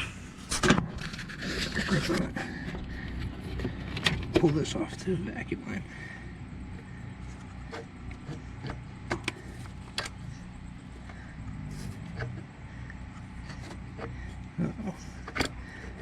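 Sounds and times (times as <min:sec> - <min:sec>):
low steady hum: 0:00.0 - 0:16.0
clicks and knocks of hand work: 0:15.2 - 0:16.0.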